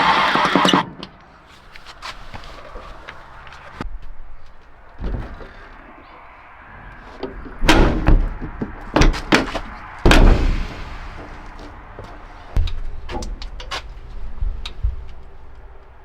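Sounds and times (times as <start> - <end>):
steel car door thudding shut: 7.4 - 15.5.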